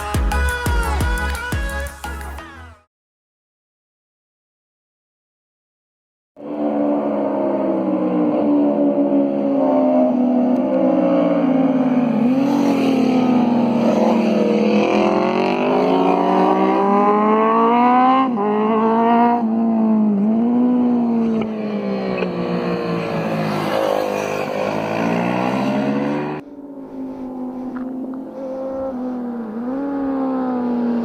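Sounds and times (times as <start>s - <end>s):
motorcycle engine accelerating: 6.4s - 31.0s.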